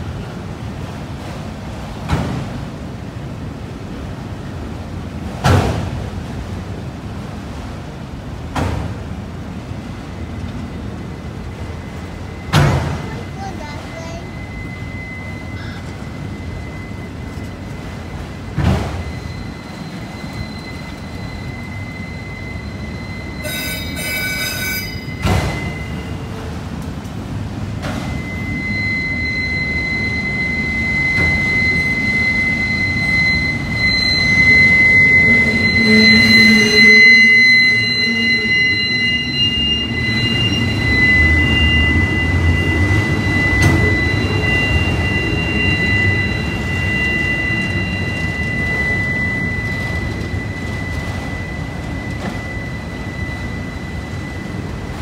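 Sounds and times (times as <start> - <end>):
freight cars rumbling on rails: 0.0 - 55.0
high wheel squeal: 10.0 - 26.7, 27.8 - 55.0.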